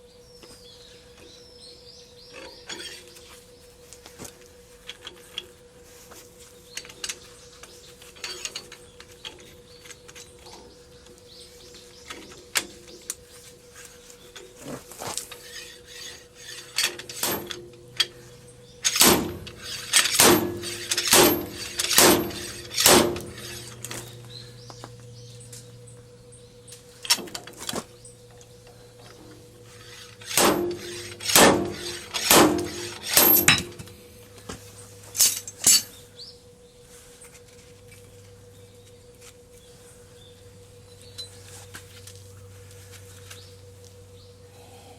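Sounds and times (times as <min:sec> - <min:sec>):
metal tools clinking: 0:02.4 - 0:03.2, 0:08.0 - 0:10.7, 0:14.3 - 0:24.3, 0:28.7 - 0:34.0, 0:35.1 - 0:36.0
ringing metal strikes: 0:15.5 - 0:24.2, 0:29.8 - 0:34.1.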